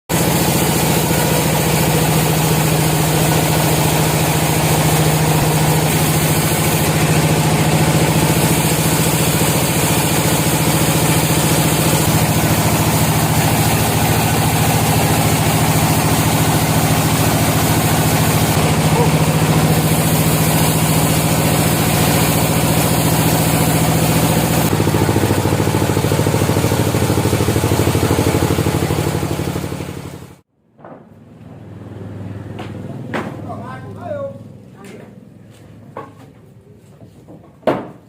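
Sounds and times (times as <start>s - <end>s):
sawmill engine droning: 0.1s - 30.4s.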